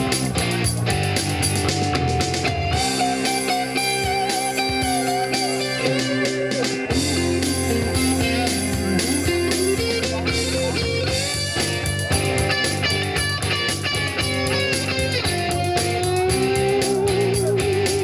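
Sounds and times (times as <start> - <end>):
bass guitar: 0.0 - 18.0
electric guitar lead: 0.0 - 18.0
steady drum beat: 0.0 - 18.0.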